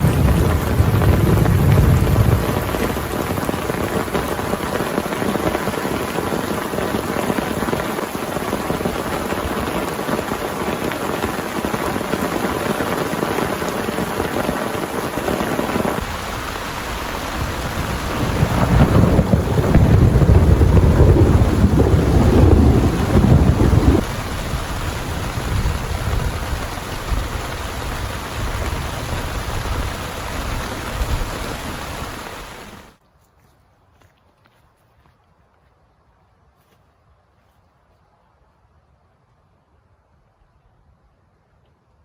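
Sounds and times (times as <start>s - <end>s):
thunder rumbling: 0.0s - 32.9s
heavy rain pouring: 0.0s - 33.0s.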